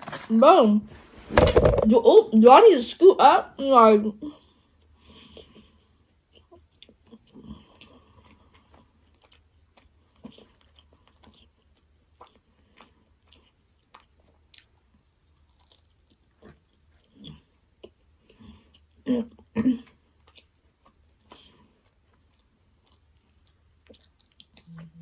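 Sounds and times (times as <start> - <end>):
chewing and mouth smacks: 4.8 - 19.0, 20.0 - 25.0.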